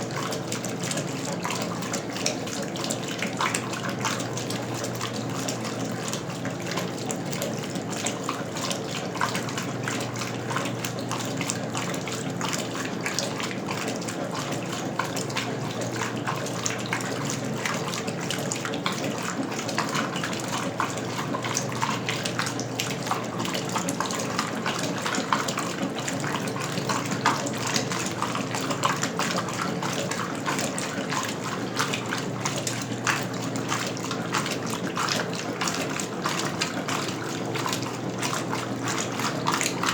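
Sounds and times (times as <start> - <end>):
washing machine water splashing: 0.0 - 39.9.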